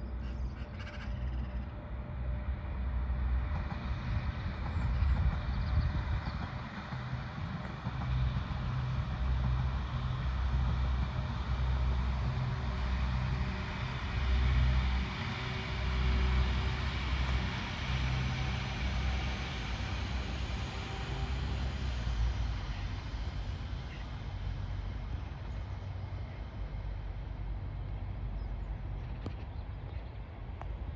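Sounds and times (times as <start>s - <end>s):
diesel engines rumbling: 0.0s - 30.9s
wheels hissing on rail: 1.3s - 29.1s.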